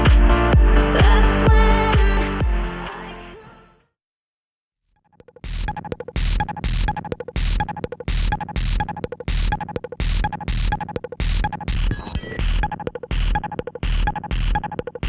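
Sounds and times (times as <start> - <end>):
electronic music with distorted beat: 0.0 - 3.3, 5.2 - 15.0
glitchy noise burst: 5.4 - 14.8.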